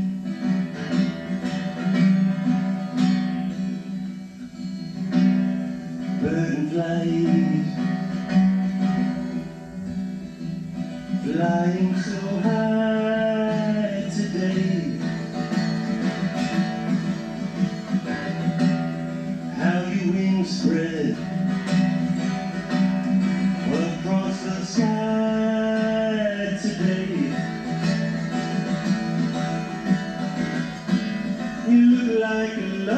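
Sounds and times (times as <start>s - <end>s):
acoustic guitar playing: 0.0s - 32.9s
person singing wordlessly: 6.2s - 8.0s, 11.2s - 15.2s, 19.4s - 21.3s, 23.6s - 27.6s, 31.6s - 32.9s.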